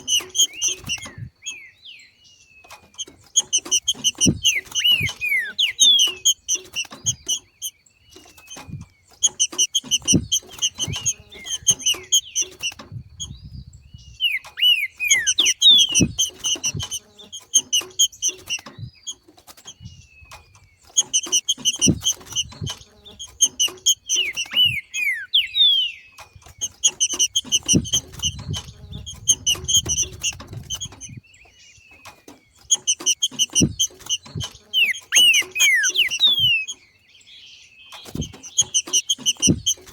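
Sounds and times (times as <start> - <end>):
bird chirping fast: 0.0 - 39.9
soft low thumps: 3.5 - 5.2, 8.6 - 14.2, 26.6 - 31.3, 38.1 - 39.9
bird downward-sliding whistles: 14.2 - 16.8, 24.1 - 26.0, 34.7 - 36.8.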